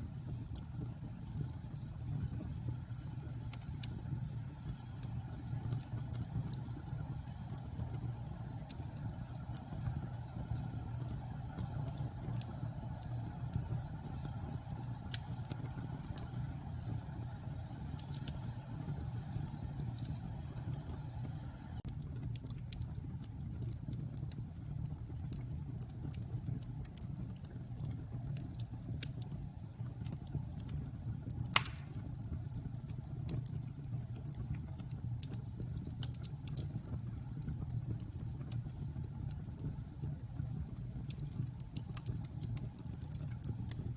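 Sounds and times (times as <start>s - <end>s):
fire crackling: 0.0s - 43.9s
low rumble of flames: 0.0s - 43.9s
sharp wood pop: 31.6s - 32.0s.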